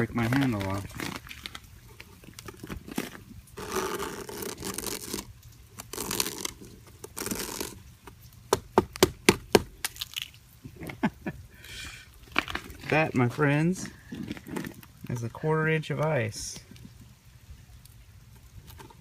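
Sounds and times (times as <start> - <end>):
ice crunching and scraping: 0.0 - 8.2, 9.8 - 10.9, 11.8 - 16.9.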